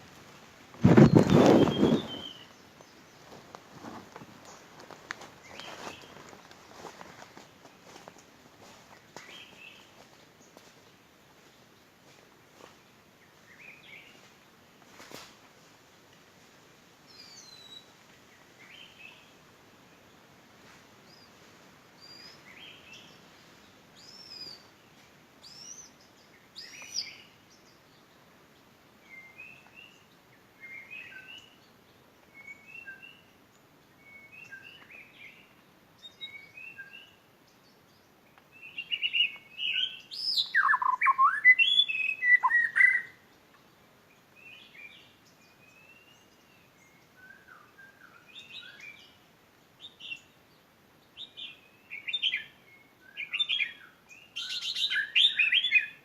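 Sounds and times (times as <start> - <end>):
bird singing whistled phrases: 0.9 - 2.5, 38.8 - 43.2, 51.9 - 56.0.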